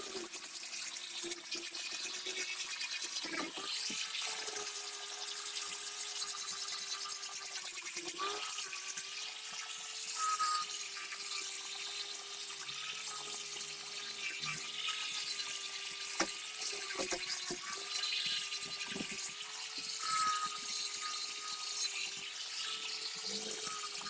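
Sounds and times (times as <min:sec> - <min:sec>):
electric motor whining: 0:16.8 - 0:24.0.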